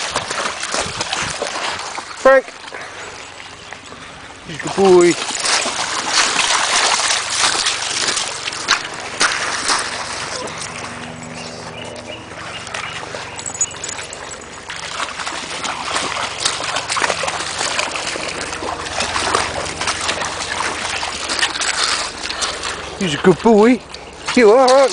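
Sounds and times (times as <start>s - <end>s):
dog wading through water: 0.0s - 24.9s.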